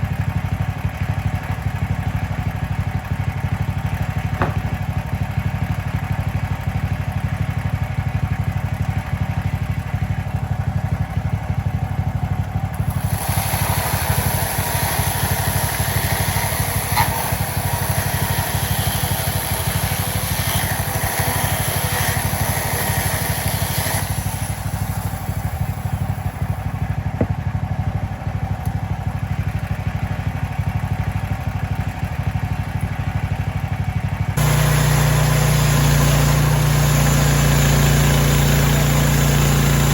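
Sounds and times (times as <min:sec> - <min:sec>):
sawmill engine running: 0:00.0 - 0:39.9
band blade cutting log: 0:04.4 - 0:04.9, 0:12.8 - 0:26.6, 0:34.4 - 0:39.9.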